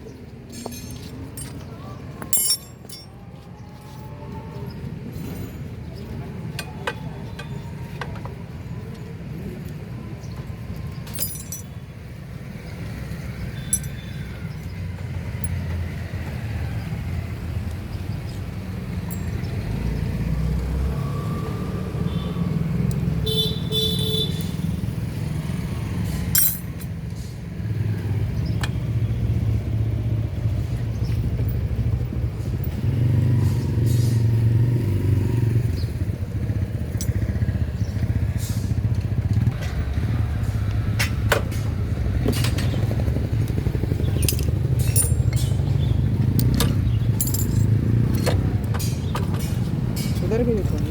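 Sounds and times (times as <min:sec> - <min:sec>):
motorcycle engines running: 0:00.0 - 0:50.9
tools clinking on metal: 0:00.5 - 0:03.2, 0:10.9 - 0:11.9, 0:13.6 - 0:14.3, 0:15.4 - 0:15.8, 0:19.0 - 0:19.6, 0:26.3 - 0:27.0, 0:36.9 - 0:37.2, 0:44.1 - 0:50.9.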